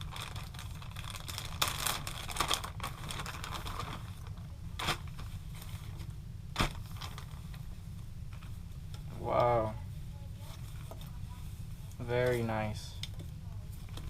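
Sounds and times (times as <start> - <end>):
packaging rustling: 0.0 - 6.0, 6.6 - 7.6
steady low hum: 0.0 - 14.0.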